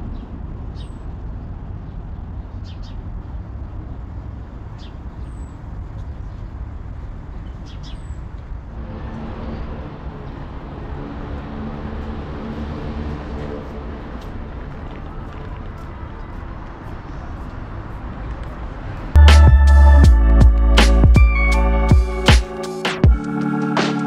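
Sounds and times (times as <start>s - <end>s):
low street rumble: 0.0s - 23.2s
vehicle engine hum: 8.3s - 22.3s.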